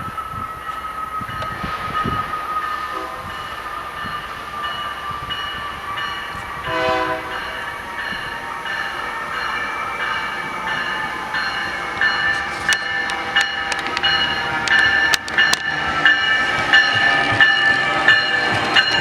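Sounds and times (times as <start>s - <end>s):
train rail and machinery noise: 0.0s - 19.0s
train horn blast: 2.9s - 3.5s, 6.6s - 7.7s.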